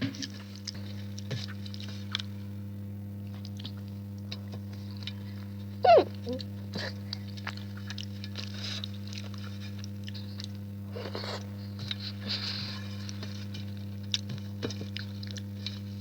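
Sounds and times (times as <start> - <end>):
low electrical hum: 0.0 - 16.0
person chewing and smacking: 3.3 - 5.2, 6.4 - 12.2, 12.9 - 15.8.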